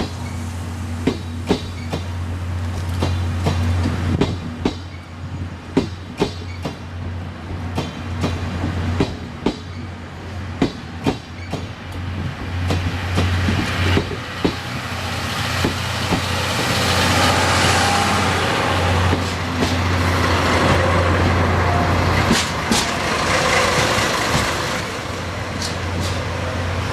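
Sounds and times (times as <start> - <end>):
train wheels clacking on rail joints: 1.0 - 5.1, 7.5 - 9.9, 10.6 - 14.8, 15.4 - 18.2, 18.8 - 21.4, 22.1 - 26.6.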